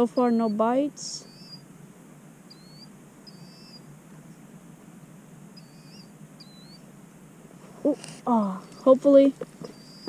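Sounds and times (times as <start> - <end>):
small bird chirping: 0.0 - 1.7, 2.4 - 4.4, 5.5 - 6.9, 7.8 - 10.0
outdoor background hiss: 0.0 - 10.0.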